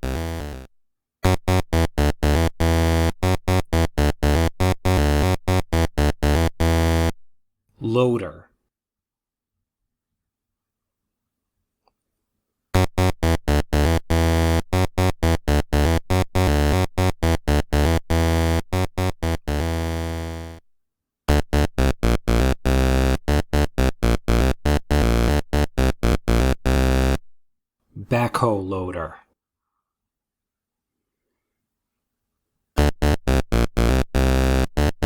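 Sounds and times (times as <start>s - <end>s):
electronic keyboard music: 0.0s - 7.1s, 12.8s - 20.6s, 21.3s - 27.2s, 32.8s - 35.0s.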